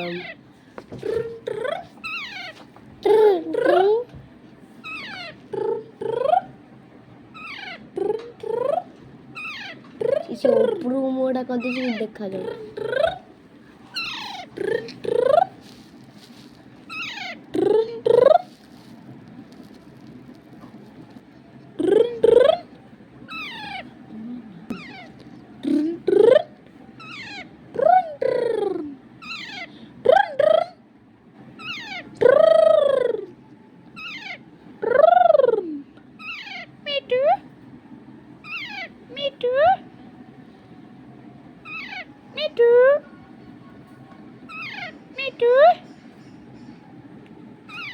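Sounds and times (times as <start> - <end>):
parrot calling: 0.0 - 0.4, 1.0 - 4.0, 4.8 - 6.6, 7.3 - 10.8, 11.5 - 18.9, 21.8 - 24.0, 24.7 - 30.8, 31.6 - 33.4, 34.0 - 35.6, 36.2 - 37.3, 38.4 - 39.5, 41.6 - 42.6, 44.5 - 46.8, 47.6 - 47.9
parrot shrill calls: 2.0 - 2.6, 4.8 - 5.4, 7.3 - 7.9, 9.4 - 9.9, 11.6 - 12.1, 13.9 - 14.6, 16.9 - 17.5, 23.3 - 23.9, 24.8 - 25.1, 27.0 - 27.5, 29.2 - 29.8, 31.6 - 32.2, 34.0 - 34.5, 36.2 - 36.8, 38.4 - 39.3, 41.6 - 42.2, 44.5 - 45.2, 47.7 - 47.9
parrot high whistles: 34.0 - 34.4, 38.4 - 38.9, 41.6 - 42.1, 47.7 - 47.9.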